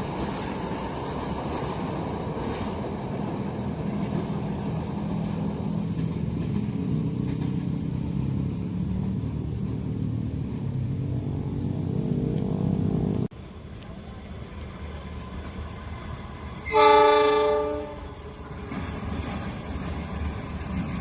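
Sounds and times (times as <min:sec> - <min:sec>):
engine running low rumble: 0:04.9 - 0:16.2.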